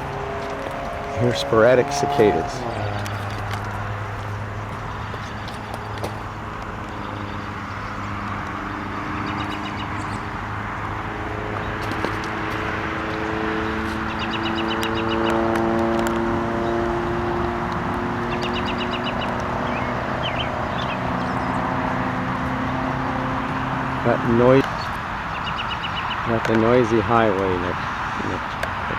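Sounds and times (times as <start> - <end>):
bird trills: 0.0 - 8.1, 14.0 - 15.4, 18.3 - 21.6
bird chirps: 0.0 - 10.3, 13.9 - 15.4, 18.3 - 21.8
cicadas singing: 0.0 - 28.9
highway traffic noise: 0.0 - 28.9
vehicle passing: 0.0 - 28.9.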